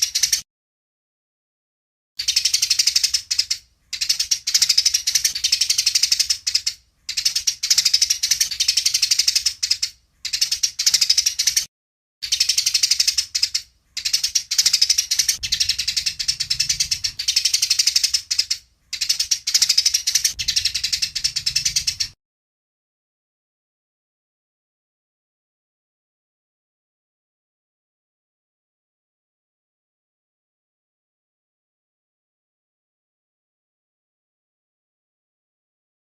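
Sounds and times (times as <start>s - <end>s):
sparrow chattering: 0.0s - 0.4s, 2.2s - 22.2s.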